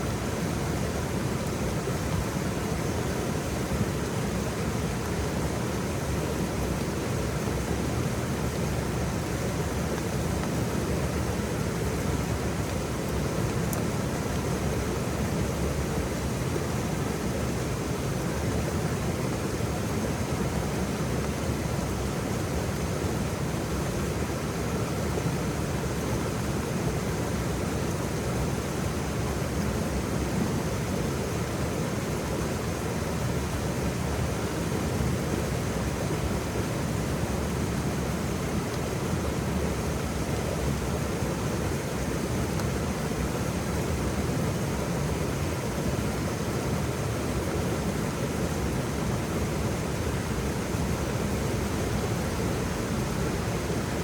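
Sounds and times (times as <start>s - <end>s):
waterfall rushing: 30.7s - 54.0s.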